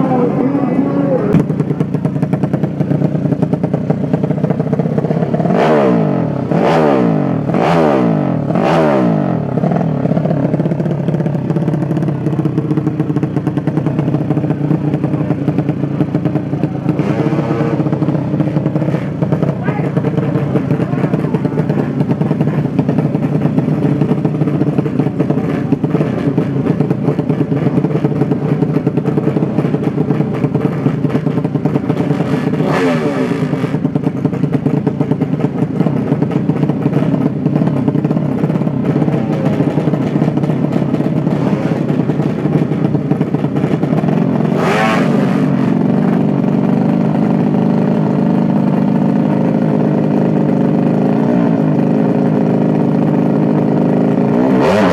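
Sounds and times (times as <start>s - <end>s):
motorcycle engines running: 0.0s - 54.9s
engine passing by: 54.5s - 54.9s.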